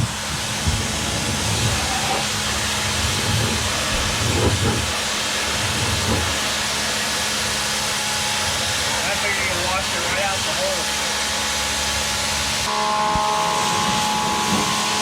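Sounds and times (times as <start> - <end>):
pressure washer water jet hissing: 0.0 - 12.7.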